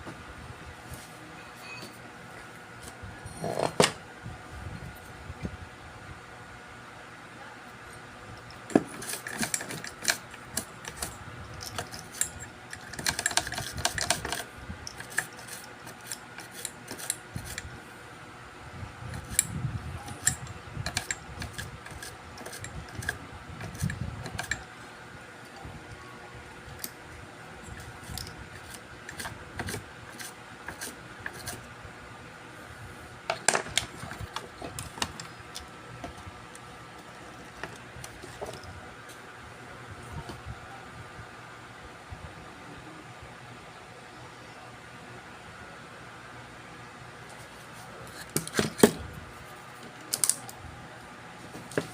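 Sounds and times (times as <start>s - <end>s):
hand tools clicking and tapping: 8.7s - 17.7s, 20.1s - 24.6s, 27.8s - 31.6s.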